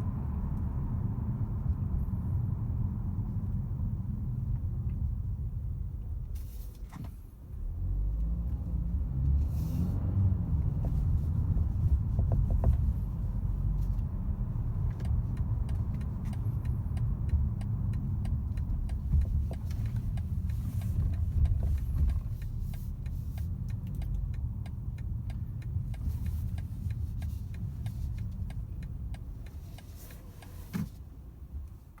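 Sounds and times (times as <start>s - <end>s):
car cabin rumble: 0.0s - 32.0s.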